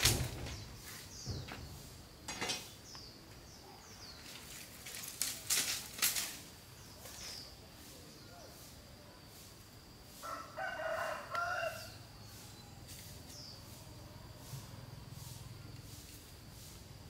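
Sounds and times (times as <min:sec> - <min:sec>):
clattering scrapes and knocks: 0:00.0 - 0:03.0
small bird chirping: 0:00.0 - 0:05.0, 0:06.6 - 0:09.2, 0:11.4 - 0:16.7.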